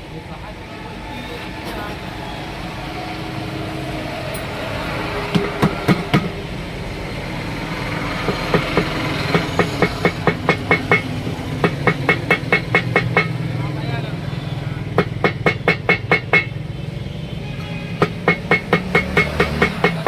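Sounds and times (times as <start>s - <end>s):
steady engine hum: 0.0s - 20.0s
hammer blows on metal: 8.2s - 13.4s, 15.0s - 16.6s, 17.9s - 20.0s.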